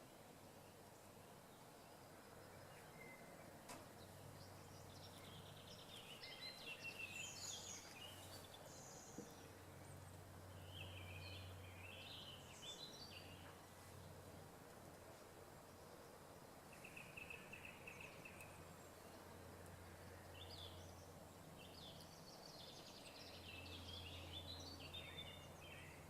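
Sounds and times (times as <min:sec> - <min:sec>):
faint bird chirping: 0:00.0 - 0:26.0
low steady hum: 0:00.0 - 0:26.0.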